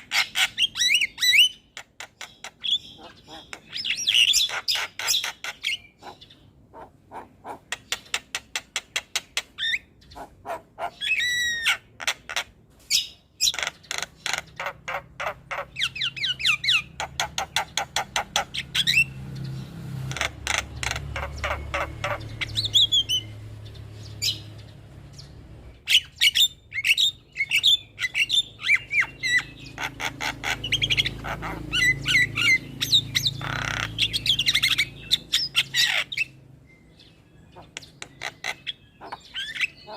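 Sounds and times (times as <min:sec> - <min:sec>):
birds chattering and squawking: 0:00.0 - 0:39.9.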